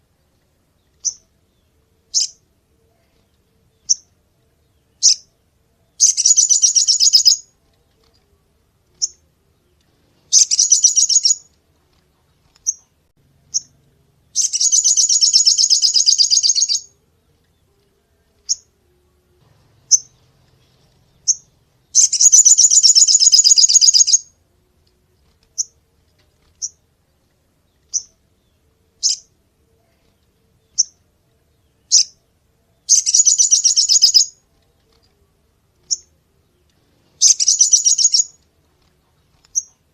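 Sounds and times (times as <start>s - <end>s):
bird trilling: 6.0s - 7.5s, 10.3s - 11.5s, 14.4s - 16.9s, 21.2s - 24.3s, 32.9s - 34.4s, 37.2s - 38.4s
bird chips: 6.0s - 8.3s, 9.9s - 12.9s, 14.4s - 16.9s, 19.8s - 24.3s, 32.9s - 35.2s, 36.9s - 39.9s.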